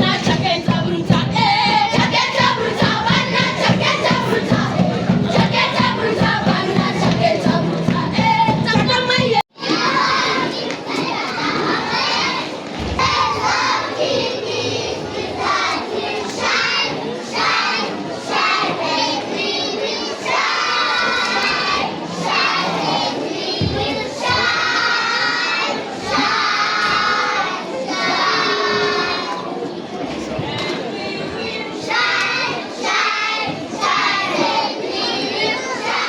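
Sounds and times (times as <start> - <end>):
children shouting and cheering: 9.6 - 29.8.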